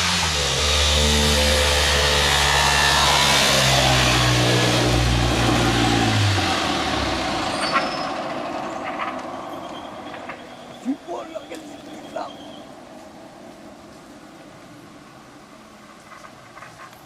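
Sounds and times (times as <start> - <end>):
rally car engine revving high: 0.0 - 7.6.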